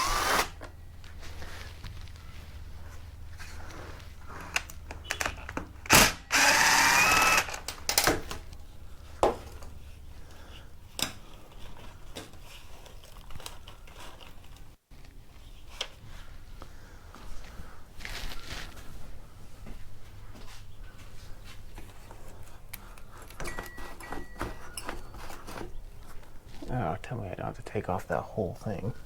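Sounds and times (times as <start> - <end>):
cordless drill whining: 0.0 - 0.7, 5.9 - 7.8
tool and parts clicks and clunks: 7.3 - 8.6, 23.0 - 25.8.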